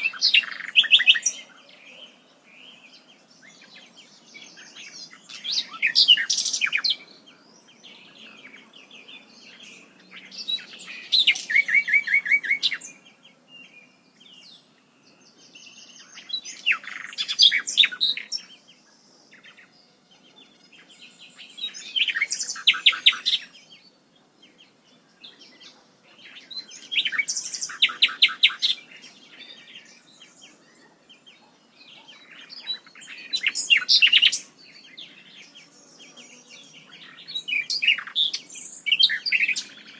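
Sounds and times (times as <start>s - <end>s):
songbird singing with rapid trills: 0.0s - 39.9s.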